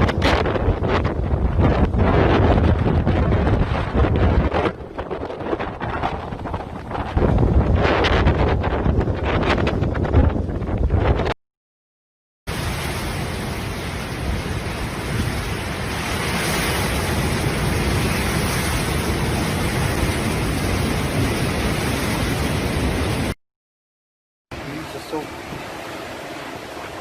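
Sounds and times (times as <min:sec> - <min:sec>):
rushing wind: 0:00.0 - 0:11.4, 0:12.5 - 0:23.4, 0:24.6 - 0:27.0
driving rain: 0:12.5 - 0:23.4.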